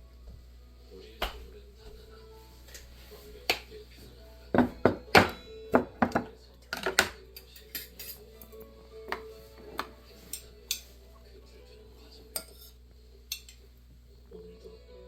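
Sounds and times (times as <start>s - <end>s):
utensils clinking against dishes: 4.6s - 11.0s, 12.3s - 13.7s.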